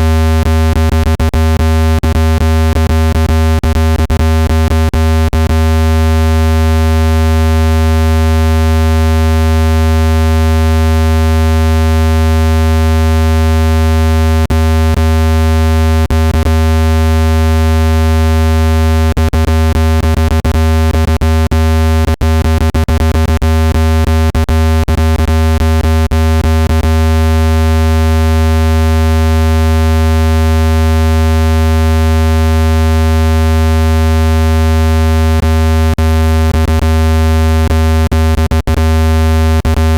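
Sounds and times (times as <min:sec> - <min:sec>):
deep synthesized hum: 0:00.0 - 0:39.9.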